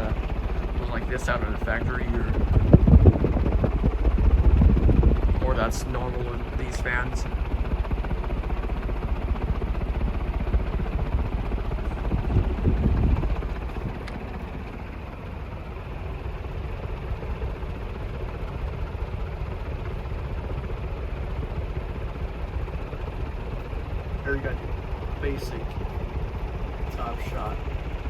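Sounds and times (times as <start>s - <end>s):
wind buffeting microphone: 0.0s - 15.0s
ceiling fan rushing air: 0.0s - 28.0s.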